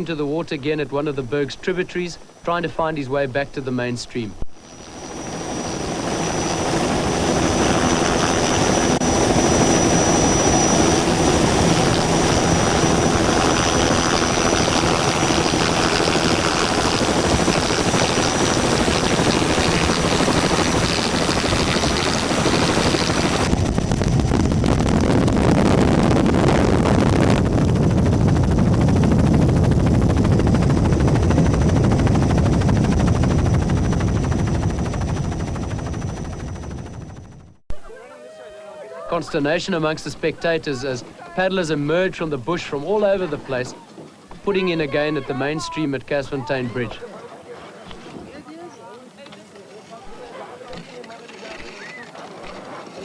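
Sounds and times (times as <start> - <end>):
loud engine drone: 4.6 - 34.8.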